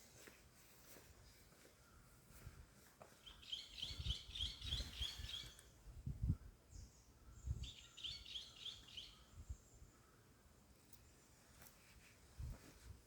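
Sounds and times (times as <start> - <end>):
small bird chirping: 3.2 - 5.8, 6.7 - 10.1.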